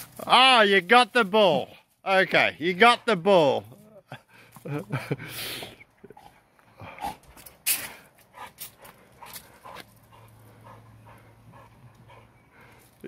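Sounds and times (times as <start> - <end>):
dog panting: 8.2 - 13.0.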